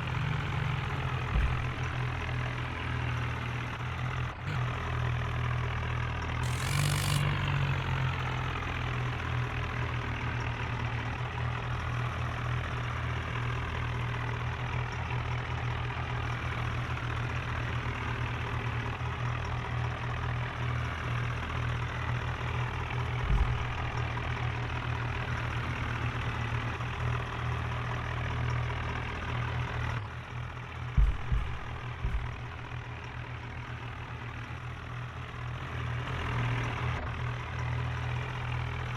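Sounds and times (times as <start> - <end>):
tractor diesel engine running: 0.0 - 38.9
low thumps: 1.4 - 2.1, 6.4 - 7.4, 23.3 - 24.0, 31.0 - 32.9
short hiss: 6.4 - 7.5.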